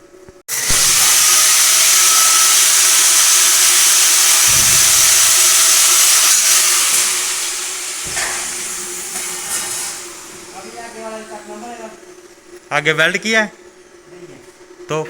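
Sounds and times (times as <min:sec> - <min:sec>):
angle grinder cutting metal: 0:00.5 - 0:11.8.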